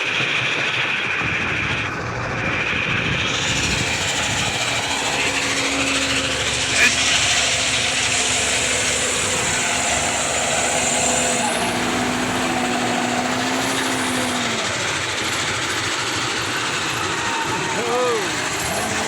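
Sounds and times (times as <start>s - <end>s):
diesel engine running: 0.0s - 19.0s
steady hum: 3.1s - 19.0s.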